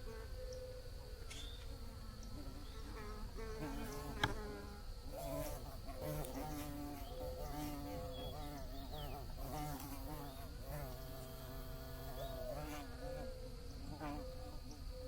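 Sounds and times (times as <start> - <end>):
bees buzzing: 1.7 - 15.0.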